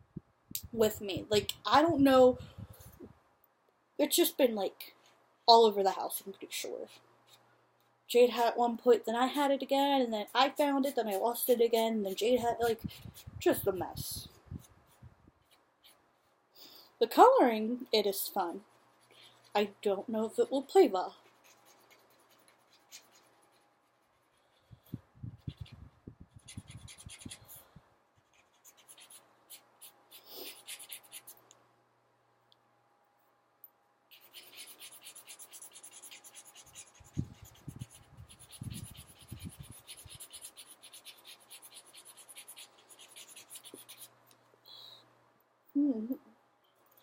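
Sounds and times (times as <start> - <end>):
scratchy colouring strokes on paper: 6.6 - 7.5, 9.9 - 16.3, 18.3 - 19.8, 21.1 - 31.4, 34.1 - 44.2.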